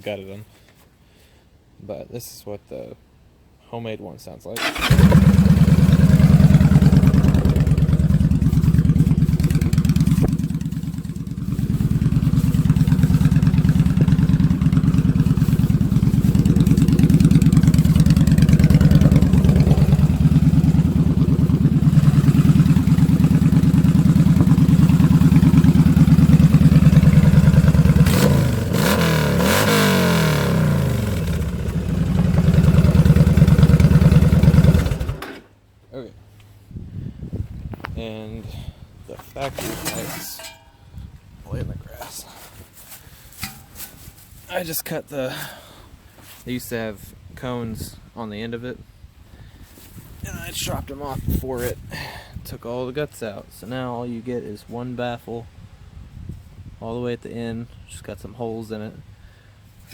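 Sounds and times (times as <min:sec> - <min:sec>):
motorcycle engine idling: 0:04.6 - 0:35.2.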